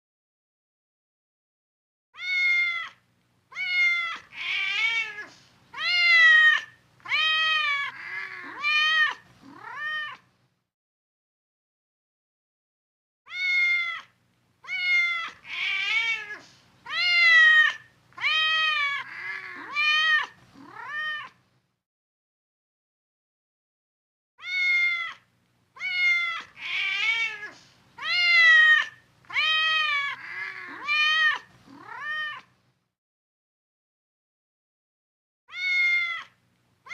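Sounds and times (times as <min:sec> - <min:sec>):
cat meowing: 0:02.2 - 0:10.3, 0:13.3 - 0:21.4, 0:24.4 - 0:32.5, 0:35.5 - 0:36.9.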